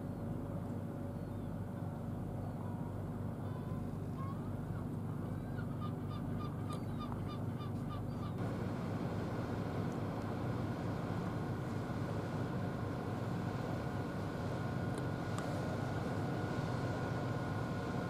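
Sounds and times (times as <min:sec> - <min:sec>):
steady low rumble: 0:08.4 - 0:18.0.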